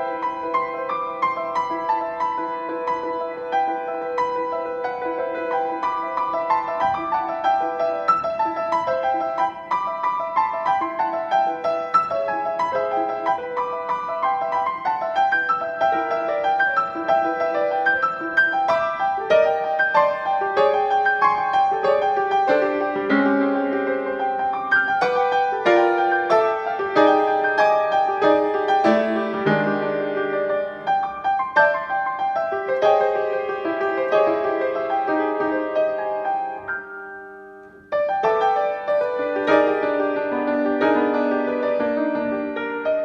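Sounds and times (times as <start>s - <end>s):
solo piano melody over chords: 0.0s - 43.0s.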